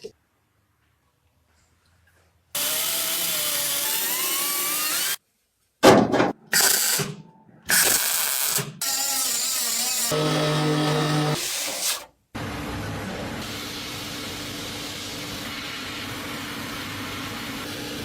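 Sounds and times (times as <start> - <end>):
power tool running: 2.6 - 5.2, 6.6 - 12.1.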